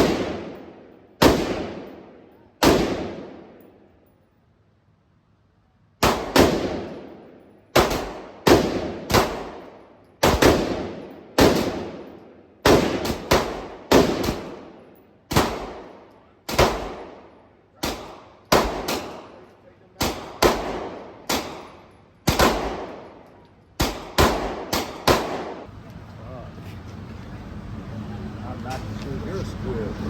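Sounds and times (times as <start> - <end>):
gunshots with echoing tail: 0.0 - 3.8, 6.0 - 19.4, 20.0 - 25.7.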